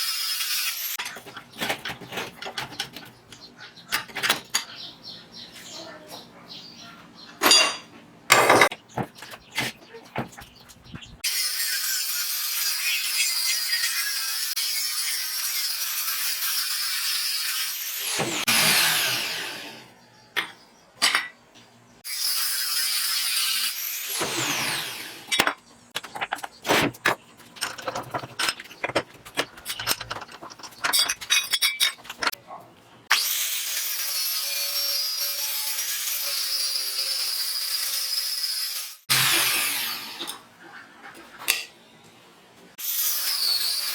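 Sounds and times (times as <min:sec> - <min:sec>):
power tool running: 0:08.3 - 0:08.7, 0:11.2 - 0:19.9, 0:22.1 - 0:25.3, 0:33.1 - 0:40.4.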